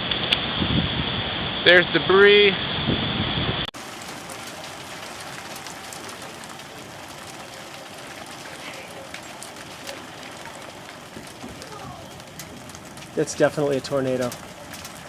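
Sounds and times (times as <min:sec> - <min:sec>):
distant tornado roar: 0:00.0 - 0:15.0
rain and wind rushing: 0:00.0 - 0:15.0
raindrops ticking near microphone: 0:03.8 - 0:15.0.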